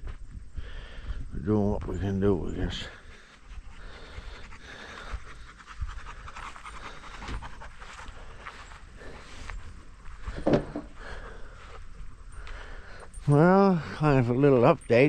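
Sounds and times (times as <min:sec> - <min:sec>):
dog panting: 0:02.6 - 0:10.0.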